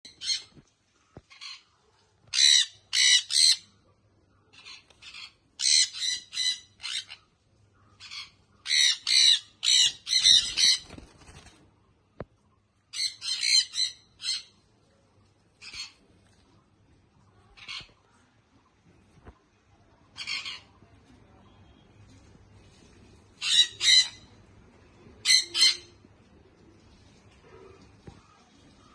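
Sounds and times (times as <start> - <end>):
parrot squawking: 2.3 - 3.7, 4.6 - 7.2, 8.0 - 10.8, 13.0 - 14.5, 20.2 - 20.7, 23.4 - 24.3, 25.2 - 26.0.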